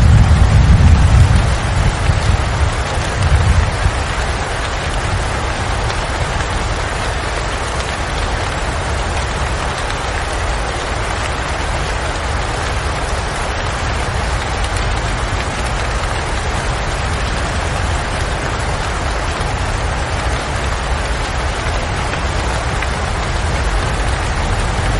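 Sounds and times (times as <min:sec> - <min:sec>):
deep low rumble: 0:00.0 - 0:03.9
steady rain: 0:00.0 - 0:24.9.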